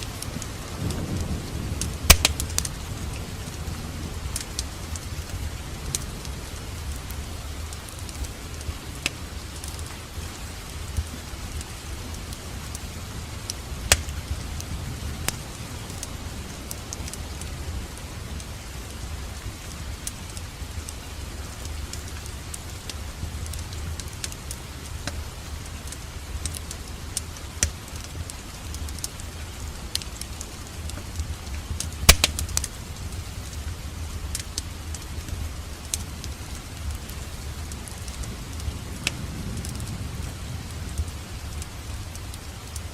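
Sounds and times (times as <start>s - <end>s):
low fire rumble: 0.0s - 42.9s
wood fire crackling: 0.0s - 42.9s
sharp fire pops: 0.2s - 2.8s, 13.5s - 14.3s, 31.8s - 33.2s.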